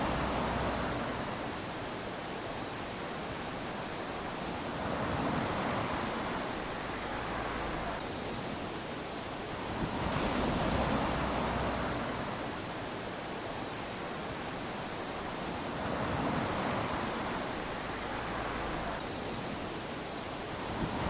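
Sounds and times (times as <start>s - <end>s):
small waves lapping on sand: 0.0s - 21.0s.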